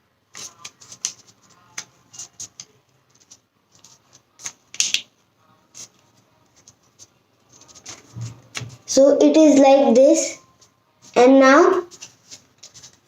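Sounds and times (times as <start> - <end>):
paper crackling and rustling: 0.3 - 5.0, 5.7 - 8.9, 11.8 - 13.0.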